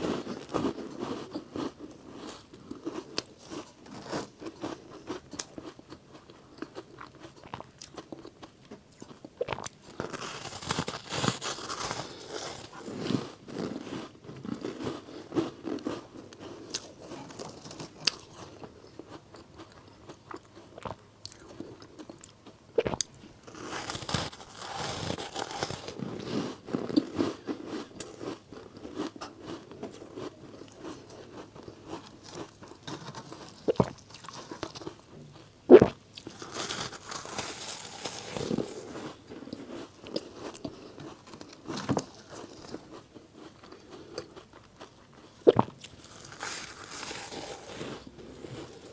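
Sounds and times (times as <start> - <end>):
crunching frozen ice: 9.0 - 20.1, 23.0 - 35.1, 35.8 - 44.6, 45.7 - 48.9
gritty powdery grinding: 10.0 - 18.0, 23.4 - 28.2, 45.9 - 48.9.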